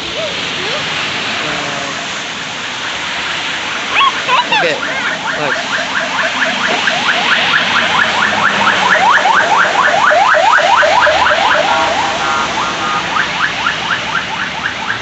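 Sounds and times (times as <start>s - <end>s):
floodwater rushing: 0.0s - 15.0s
car alarm whooping: 2.7s - 15.0s.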